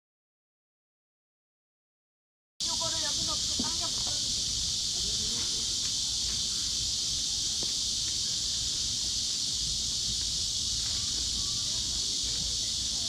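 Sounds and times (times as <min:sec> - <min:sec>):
insects chorus: 0:02.6 - 0:13.0.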